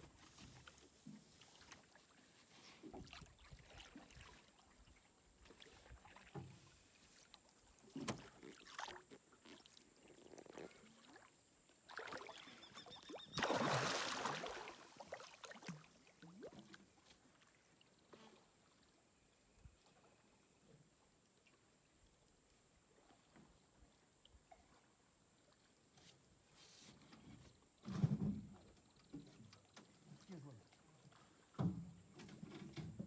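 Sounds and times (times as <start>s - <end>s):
water splashing around boat: 0.0s - 18.9s.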